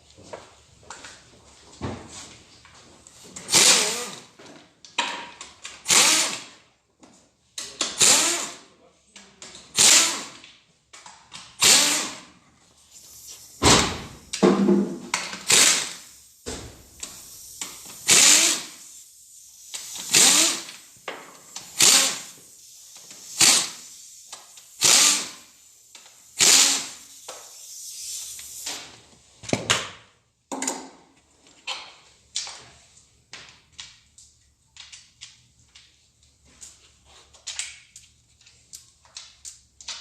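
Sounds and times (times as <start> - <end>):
power tool spinning bolts: 3.5 - 4.3, 5.8 - 6.5, 7.9 - 8.6, 9.7 - 10.4, 11.6 - 12.3, 15.2 - 16.1, 17.7 - 18.8, 19.7 - 22.4, 23.2 - 23.9, 24.6 - 25.5, 26.3 - 27.0.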